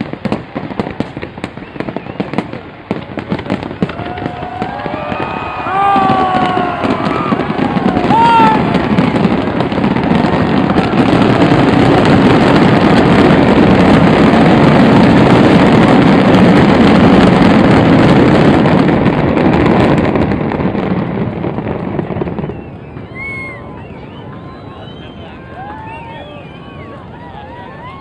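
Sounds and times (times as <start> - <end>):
fireworks booming and crackling: 0.0 - 28.0
firework whistles: 1.1 - 2.6, 3.5 - 15.7, 21.8 - 28.0.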